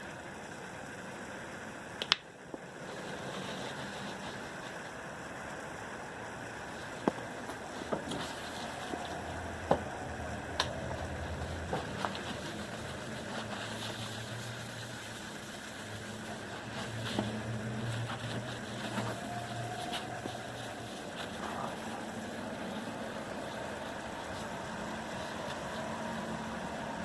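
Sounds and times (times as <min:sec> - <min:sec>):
low engine hum: 0:00.0 - 0:27.0
sharp clicks and light knocks: 0:02.0 - 0:02.7.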